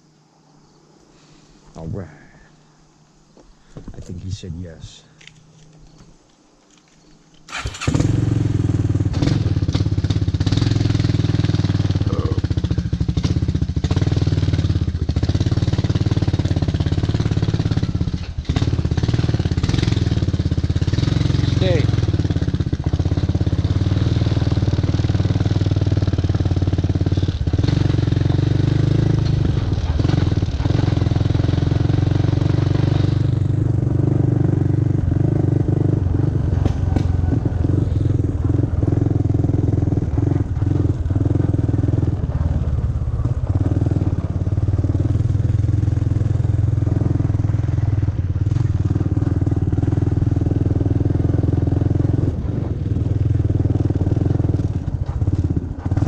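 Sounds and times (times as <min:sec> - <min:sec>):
atv engine running: 0:07.5 - 0:56.0
knocks and rattles: 0:35.8 - 0:46.1.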